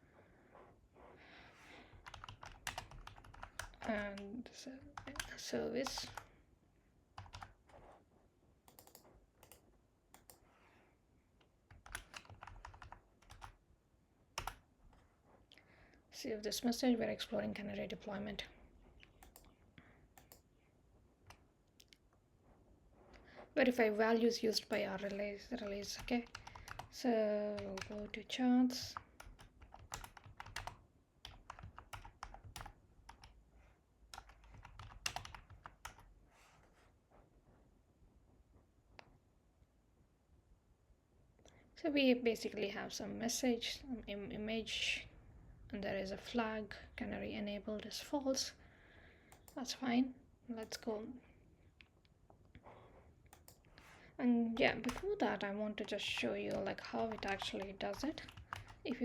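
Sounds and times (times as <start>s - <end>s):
typing on computer keyboard: 1.9s - 4.3s, 4.9s - 6.3s, 7.2s - 7.6s, 8.7s - 10.4s, 11.7s - 13.6s, 14.4s - 14.6s, 19.0s - 19.5s, 25.6s - 28.2s, 28.8s - 33.4s, 34.1s - 36.1s, 54.8s - 55.2s, 55.8s - 59.0s.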